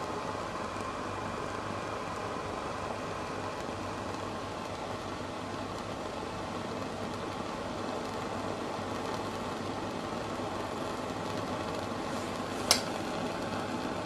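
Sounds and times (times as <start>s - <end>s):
spirit burner roaring: 0.0s - 14.0s
sharp click: 12.7s - 13.0s.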